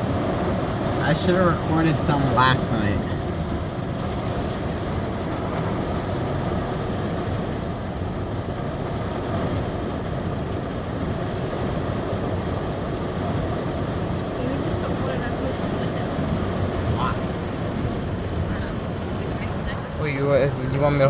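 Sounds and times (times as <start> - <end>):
heavy rain on vehicle roof: 0.0 - 21.0.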